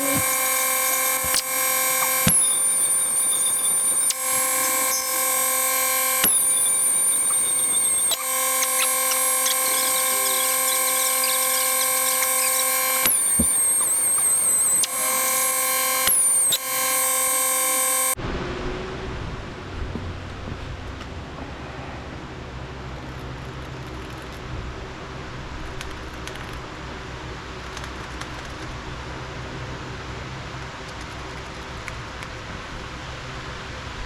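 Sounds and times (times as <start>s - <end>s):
power tool high whine: 0.0s - 18.2s.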